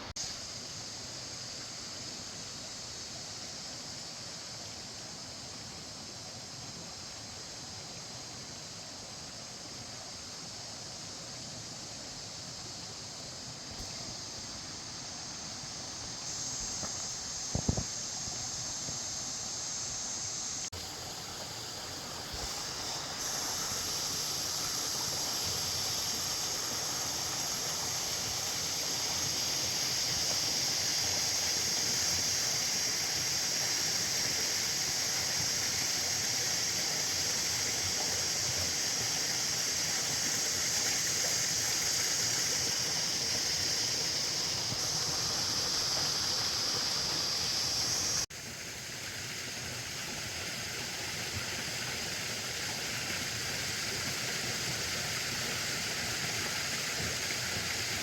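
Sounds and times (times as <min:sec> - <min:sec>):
river water rushing: 0:43.6 - 0:48.3.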